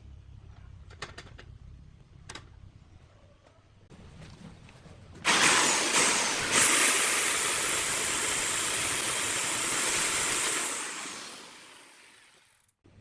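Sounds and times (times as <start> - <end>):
lathe woodturning hiss: 5.3 - 12.4.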